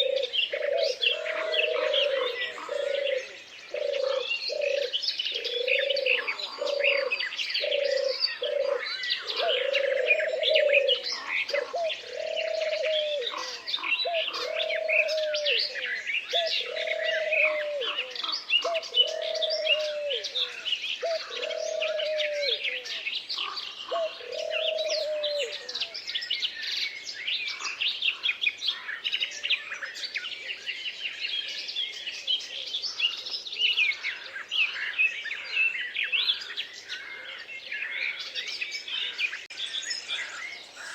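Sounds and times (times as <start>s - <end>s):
low cooing call: 0.0s - 26.0s
songbirds chirping and trilling: 0.0s - 40.9s.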